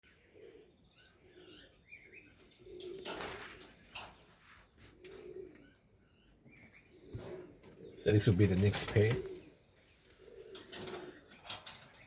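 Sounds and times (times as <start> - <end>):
pigeons cooing: 0.0 - 12.0
wings fluttering: 2.8 - 5.3.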